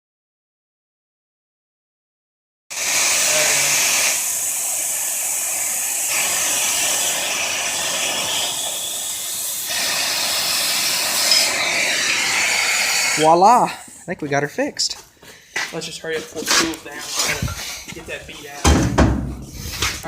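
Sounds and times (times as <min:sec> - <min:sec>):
gas torch flame hissing: 0:02.7 - 0:14.1, 0:19.3 - 0:20.0.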